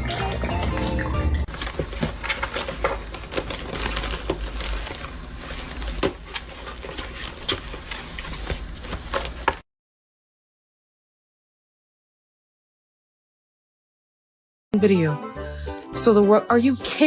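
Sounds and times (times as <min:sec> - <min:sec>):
rustling: 0:01.5 - 0:09.6.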